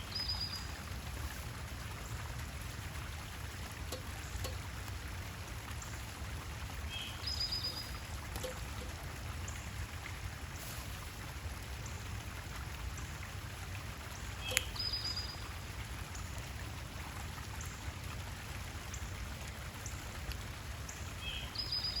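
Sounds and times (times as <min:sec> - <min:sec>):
water trickling: 0:00.0 - 0:22.0
songbird two-part call: 0:14.4 - 0:15.3.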